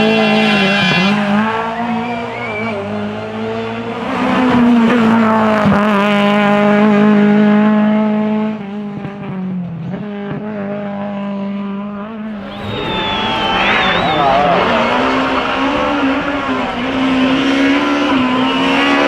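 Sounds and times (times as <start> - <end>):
tyre squeal: 12.3 - 18.4
sharp cracks: 12.3 - 18.6.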